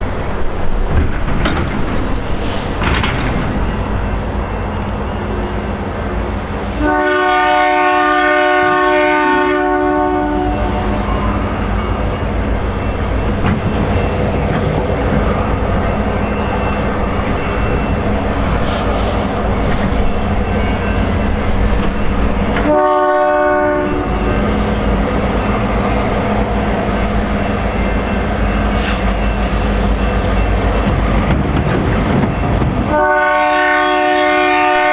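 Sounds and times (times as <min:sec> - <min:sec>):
train rumble: 0:00.0 - 0:34.9
train air horn blasts: 0:06.7 - 0:12.0, 0:22.6 - 0:24.7, 0:32.8 - 0:34.9.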